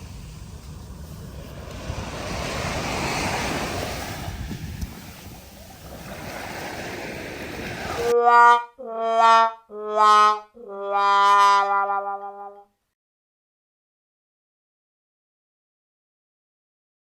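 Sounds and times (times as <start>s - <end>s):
wind noise on microphone: 0.0s - 8.1s
surf: 0.0s - 8.2s
brass fanfare notes: 8.0s - 12.7s.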